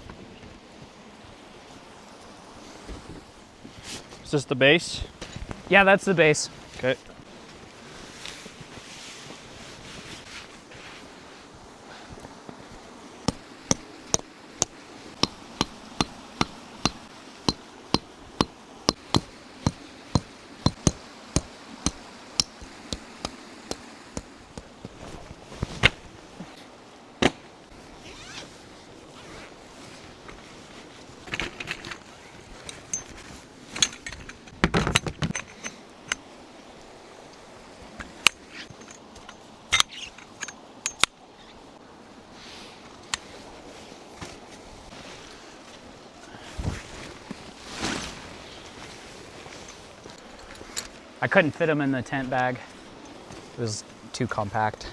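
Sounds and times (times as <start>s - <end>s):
hammer knocking tent stakes: 13.2s - 25.0s.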